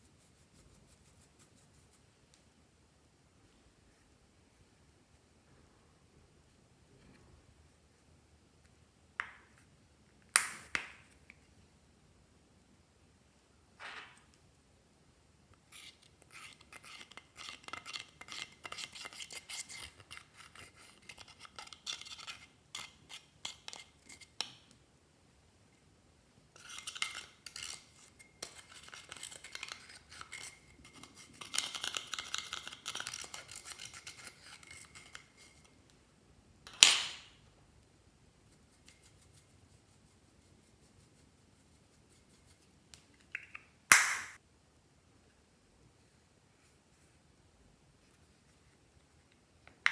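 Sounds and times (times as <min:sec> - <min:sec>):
sharp snap: 0:43.4 - 0:44.4.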